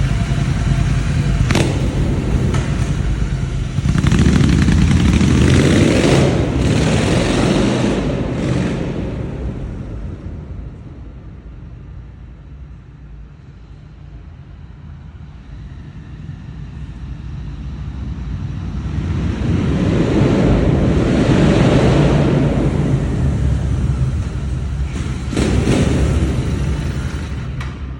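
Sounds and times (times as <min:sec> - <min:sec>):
motorcycle exhaust note: 0:00.0 - 0:12.8, 0:18.8 - 0:27.9.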